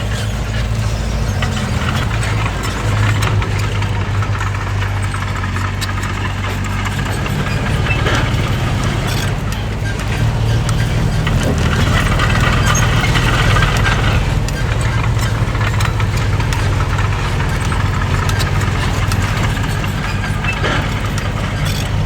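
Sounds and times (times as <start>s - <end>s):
clanks and rattles: 0.0s - 22.0s
diesel engine running: 0.0s - 22.0s.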